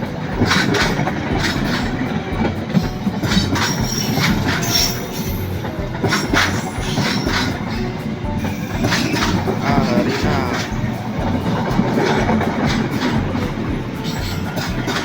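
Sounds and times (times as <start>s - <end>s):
faint high wheel squeal: 0.0s - 15.0s
train wheels clacking over joints: 0.0s - 15.0s.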